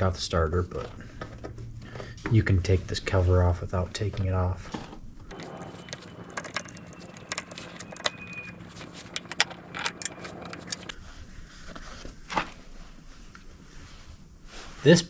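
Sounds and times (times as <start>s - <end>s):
metal tools clicking and clinking: 5.3s - 10.9s.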